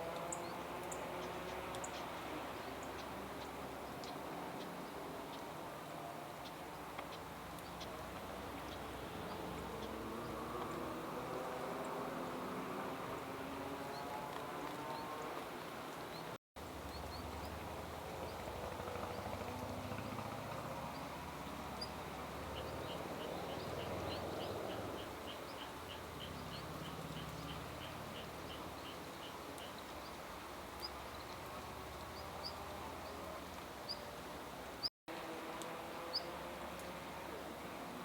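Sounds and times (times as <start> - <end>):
small birds chirping: 20.8 - 33.2.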